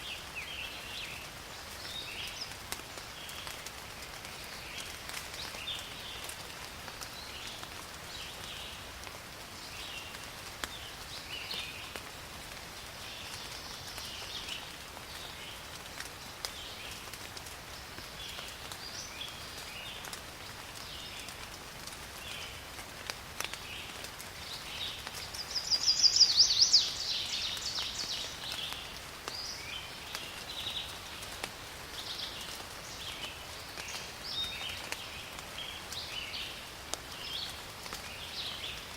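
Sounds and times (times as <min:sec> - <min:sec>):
rain hissing: 0:00.1 - 0:38.9
high chirping calls: 0:25.3 - 0:28.4.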